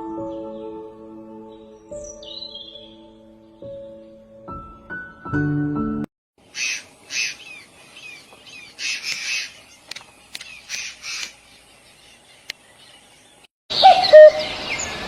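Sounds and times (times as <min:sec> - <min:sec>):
piano music: 0:00.0 - 0:06.1
parrots squawking and chirping: 0:06.4 - 0:09.8, 0:10.4 - 0:11.4
sharp clicks: 0:08.9 - 0:11.4.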